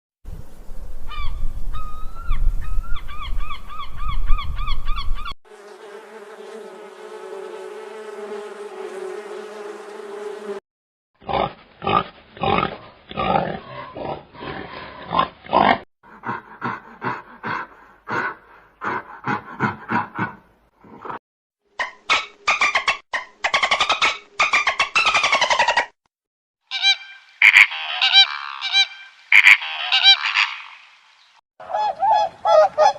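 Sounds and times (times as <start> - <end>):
repeated honking animal calls: 26.7 - 30.8.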